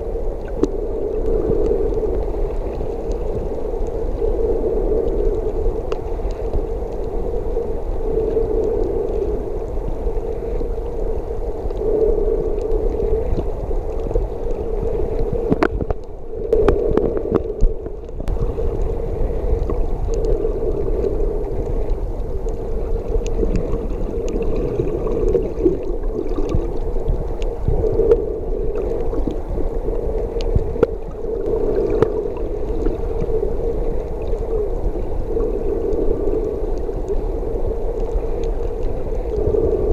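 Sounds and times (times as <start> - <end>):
low rumble: 0.0 - 39.9
underwater water movement hum: 0.0 - 39.9.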